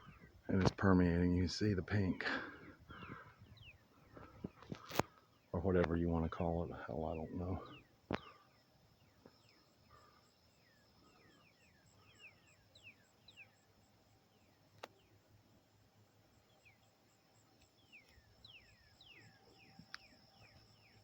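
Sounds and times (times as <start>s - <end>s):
birds chirping: 0.0s - 21.0s
click: 14.8s - 15.0s, 19.9s - 20.1s.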